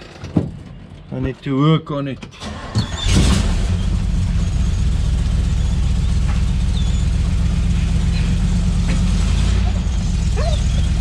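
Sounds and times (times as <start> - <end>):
car engine idling: 2.6 - 11.0.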